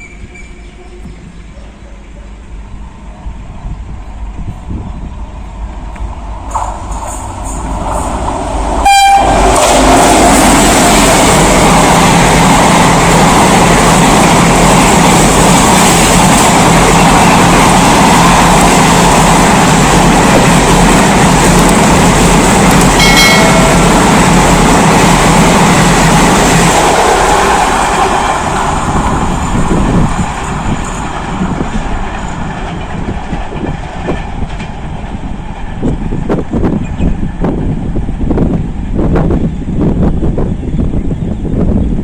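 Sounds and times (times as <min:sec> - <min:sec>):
express train passing: 0:00.0 - 0:42.0
locomotive horn blast: 0:08.8 - 0:09.8.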